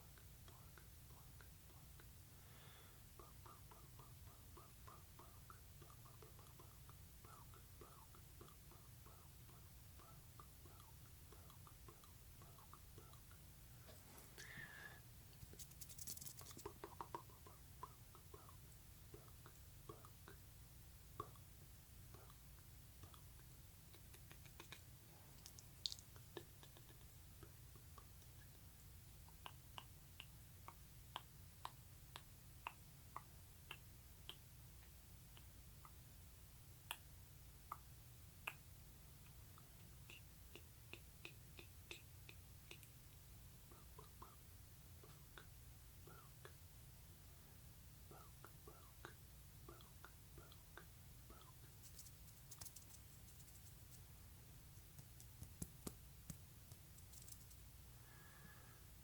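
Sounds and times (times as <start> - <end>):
low steady hum: 0.0 - 59.0
wet mouth clicks: 15.5 - 20.4, 23.0 - 28.1, 29.3 - 34.4, 39.2 - 43.0, 48.1 - 53.7, 56.7 - 57.6
soft clicks and taps: 48.1 - 54.1, 54.8 - 57.7.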